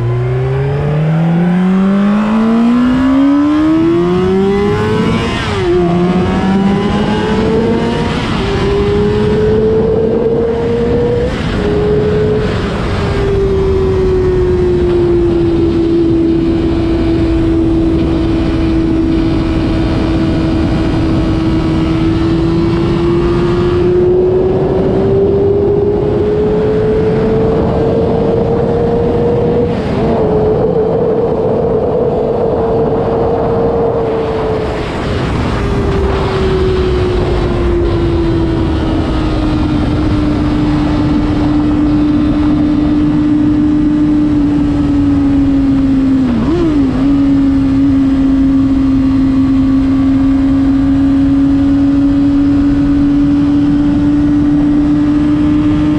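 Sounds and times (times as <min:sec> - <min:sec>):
motorcycle engine revving: 0:00.0 - 0:55.9
wind rush: 0:00.0 - 0:55.9.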